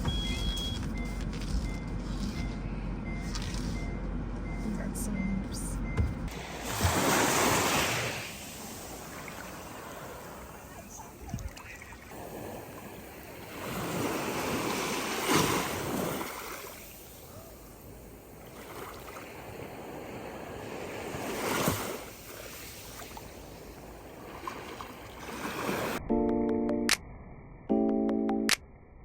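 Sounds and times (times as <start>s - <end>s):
sea waves breaking on shore: 6.3s - 26.0s.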